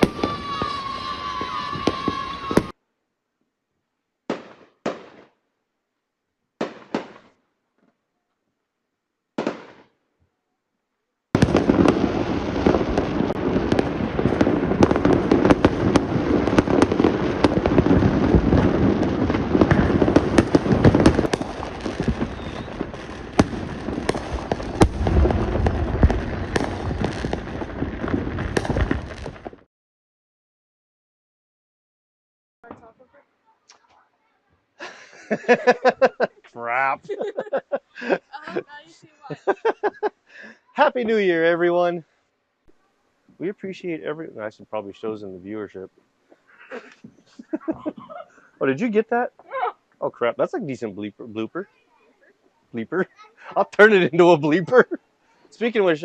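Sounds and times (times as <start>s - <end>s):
fireworks banging and crackling: 0.0s - 2.8s, 4.3s - 5.4s, 6.6s - 7.4s, 9.4s - 10.0s, 11.4s - 29.7s, 32.6s - 34.0s, 35.2s - 40.2s, 43.4s - 49.2s, 52.7s - 56.0s.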